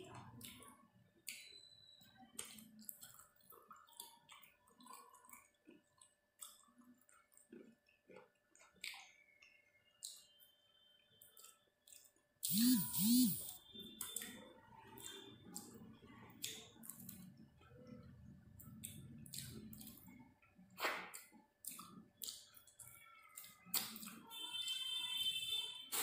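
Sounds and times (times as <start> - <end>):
chewing: 0.2 - 10.4, 11.2 - 13.4, 14.0 - 24.4
mouth clicks: 12.4 - 13.5.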